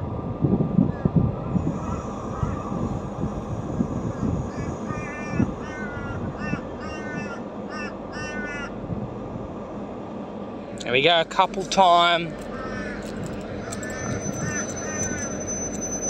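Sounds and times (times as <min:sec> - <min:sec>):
diesel locomotive rumble: 0:00.0 - 0:16.0
bird calling: 0:01.7 - 0:03.2, 0:04.0 - 0:08.8, 0:11.6 - 0:16.0.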